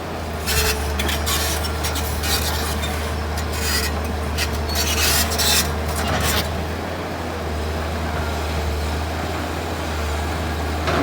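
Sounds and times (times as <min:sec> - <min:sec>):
excavator engine droning: 0:00.0 - 0:11.0.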